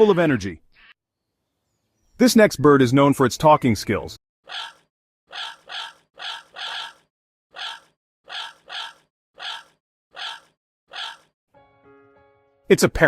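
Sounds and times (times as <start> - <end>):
parrot squawking: 4.5 - 11.3.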